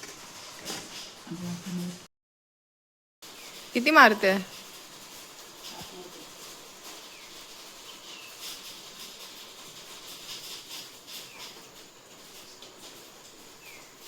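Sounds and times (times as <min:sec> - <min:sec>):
faint outdoor hiss: 0:03.2 - 0:14.0.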